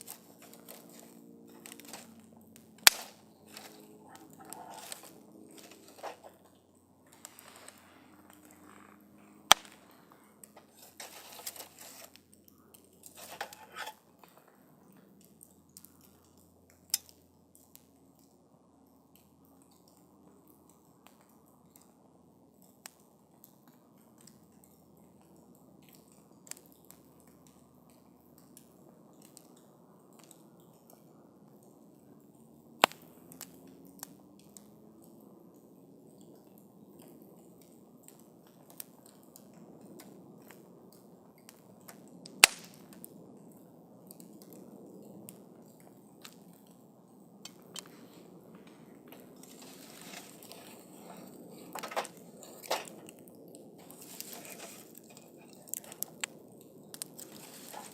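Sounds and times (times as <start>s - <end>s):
campfire crackling: 0.0s - 57.9s
sharp pops and snaps of fire: 0.0s - 57.9s
fire hissing: 2.8s - 6.5s, 7.1s - 8.8s, 47.4s - 53.2s, 53.8s - 57.9s.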